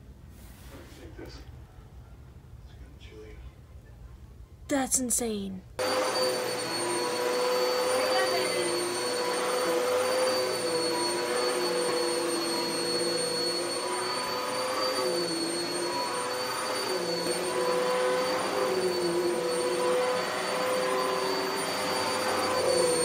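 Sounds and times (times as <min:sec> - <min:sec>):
vacuum cleaner on carpet: 0:05.8 - 0:23.0.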